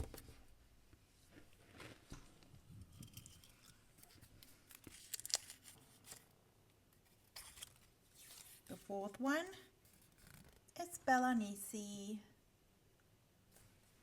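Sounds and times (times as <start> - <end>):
paper slips rustling and crinkling: 4.7 - 6.2.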